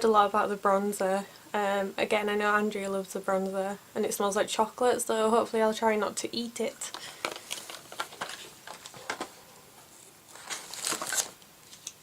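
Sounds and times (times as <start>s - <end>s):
wrapping crinkling: 7.0s - 12.0s.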